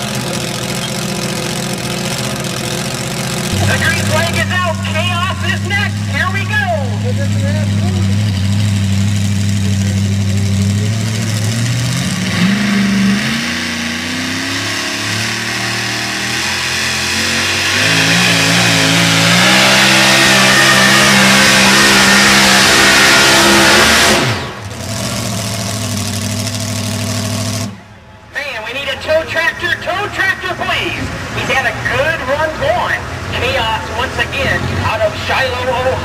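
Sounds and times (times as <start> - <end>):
truck engine revving under load: 0.0 - 28.0.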